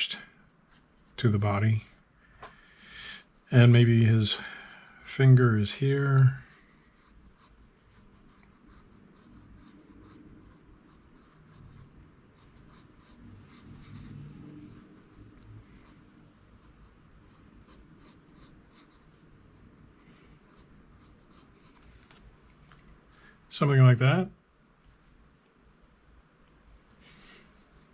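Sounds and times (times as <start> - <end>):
pencil scratching on paper: 0.6 - 1.4, 6.3 - 16.0, 16.6 - 21.8.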